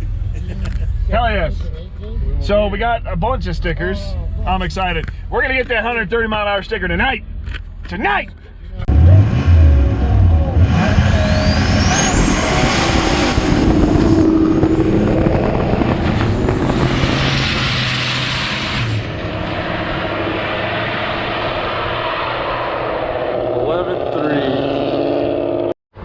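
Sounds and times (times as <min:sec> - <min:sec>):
drag car engine accelerating: 0:08.8 - 0:25.8.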